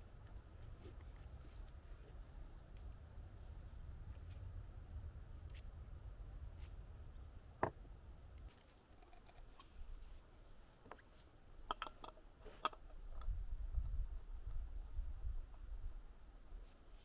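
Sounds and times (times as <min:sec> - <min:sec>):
low steady rumble: 0:00.0 - 0:10.8.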